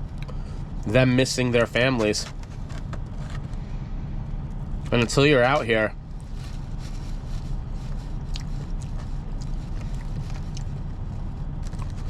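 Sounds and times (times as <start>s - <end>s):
low engine rumble: 0.0s - 12.0s
chewing: 6.4s - 12.0s.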